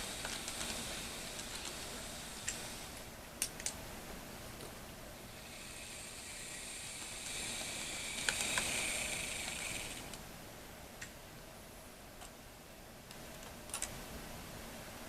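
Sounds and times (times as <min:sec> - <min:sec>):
model train motor whine: 0:00.0 - 0:03.1, 0:05.2 - 0:10.2.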